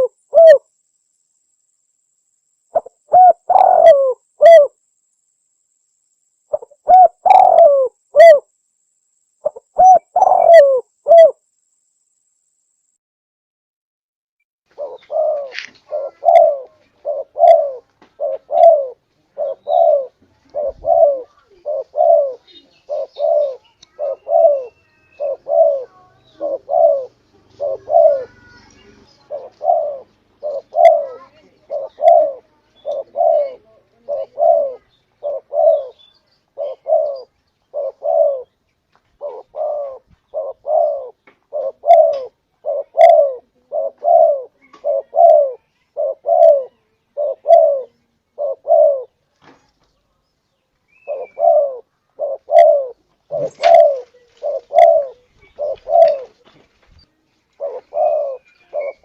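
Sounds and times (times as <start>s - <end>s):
dove cooing: 0.0s - 0.7s, 2.7s - 4.8s, 6.5s - 8.5s, 9.4s - 11.4s, 14.7s - 38.6s, 39.2s - 49.2s, 51.0s - 56.6s, 57.5s - 59.0s.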